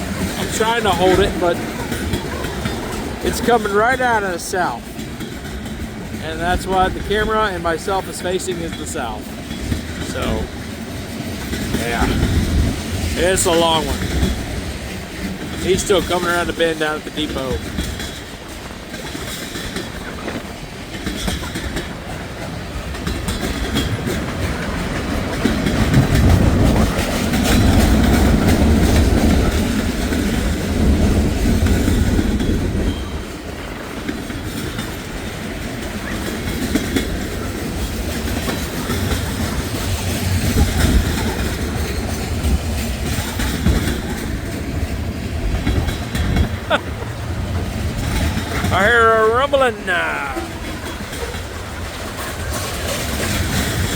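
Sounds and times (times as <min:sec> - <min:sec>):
train wheels clicking on rail joints: 0:00.0 - 0:48.7, 0:50.4 - 0:53.9
train rumble: 0:00.0 - 0:53.9.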